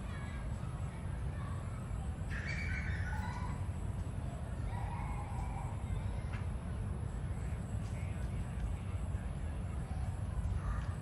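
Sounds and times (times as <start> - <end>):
harsh bird calls: 2.3 - 3.4.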